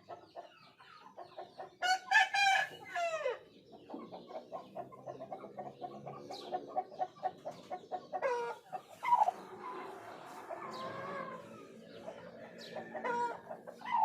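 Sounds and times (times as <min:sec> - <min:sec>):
chickens clucking rapidly: 0:00.0 - 0:14.0
chicken gliding call: 0:08.2 - 0:14.0.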